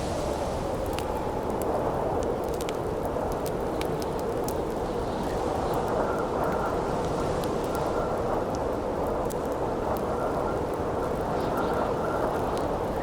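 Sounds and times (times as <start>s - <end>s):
wind blowing through forest: 0.0s - 2.4s.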